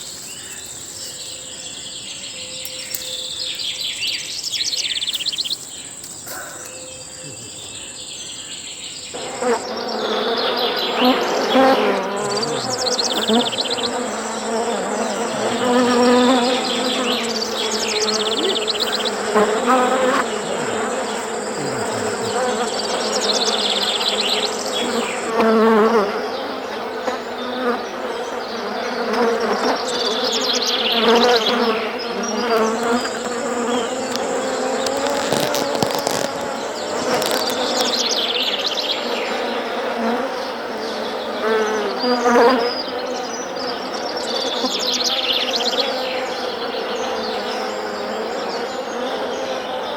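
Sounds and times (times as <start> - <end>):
bees buzzing: 9.1 - 43.2.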